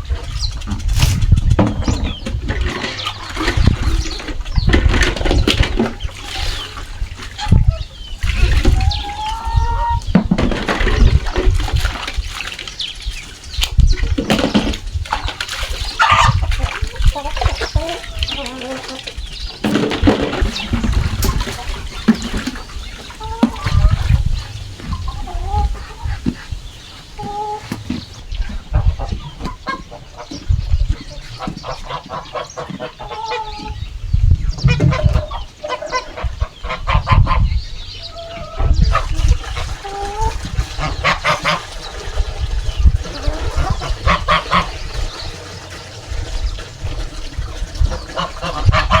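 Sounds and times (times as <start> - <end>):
water pouring and splashing: 0.0 - 33.7, 38.3 - 49.0
chickens clucking: 0.0 - 49.0
poultry chirping: 0.0 - 49.0.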